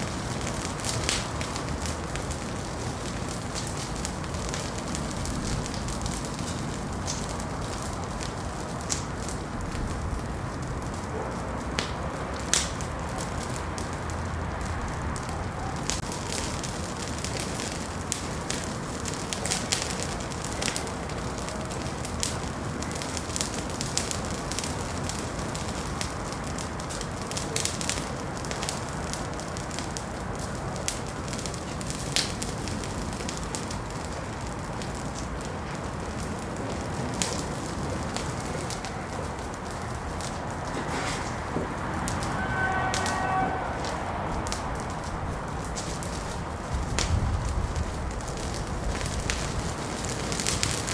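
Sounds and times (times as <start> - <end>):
wood fire crackling and popping: 0.0 - 50.9.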